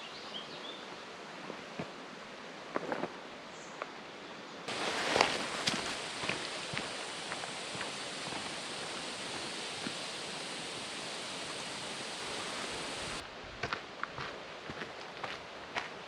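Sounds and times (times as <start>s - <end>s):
footsteps on trail: 4.7s - 16.0s
stream running water: 4.7s - 16.0s.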